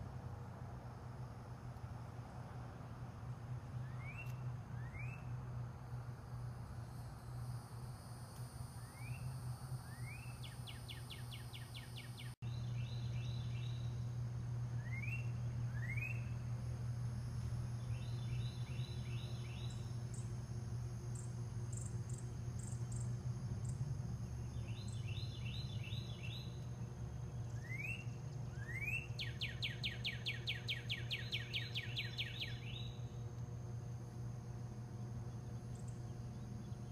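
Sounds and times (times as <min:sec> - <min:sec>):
steady low hum: 0:00.0 - 0:36.9
songbird singing: 0:01.6 - 0:07.7, 0:08.4 - 0:36.9.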